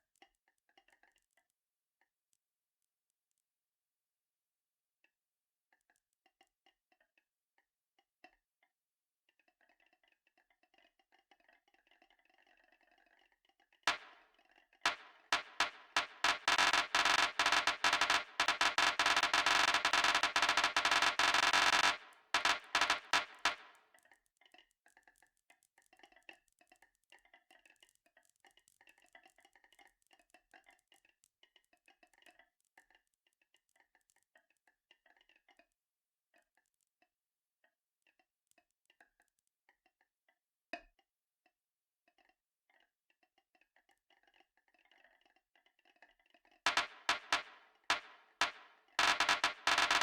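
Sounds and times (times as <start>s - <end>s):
marbles clacking on a track: 13.9s - 14.2s, 14.9s - 23.8s, 46.7s - 50.0s
sharp knock: 13.9s - 14.2s, 14.9s - 23.7s, 46.7s - 50.0s.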